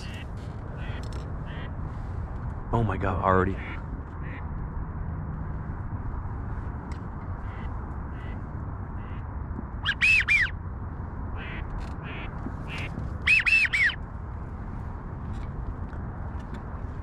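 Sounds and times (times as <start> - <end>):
faint duck calls: 0.0 - 1.8, 3.5 - 4.5, 7.4 - 8.4, 9.0 - 9.2, 11.4 - 14.0
duck whistles: 9.8 - 10.6, 12.7 - 14.0.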